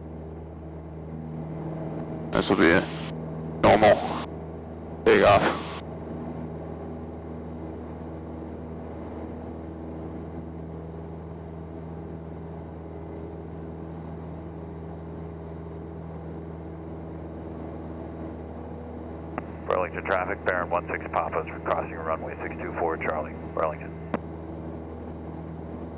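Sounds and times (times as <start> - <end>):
aircraft engine and propeller drone: 0.0 - 25.9.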